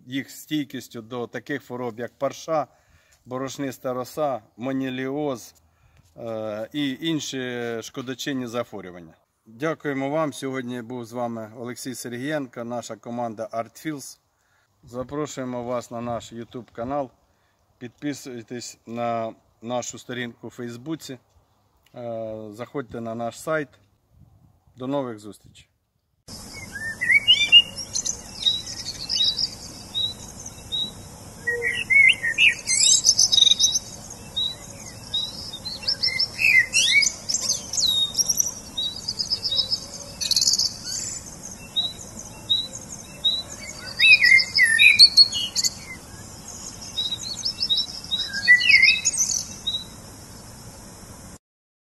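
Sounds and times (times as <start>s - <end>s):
high bird twittering: 26.3s - 50.0s
short bird chirp: 26.6s - 34.6s, 43.7s - 46.0s.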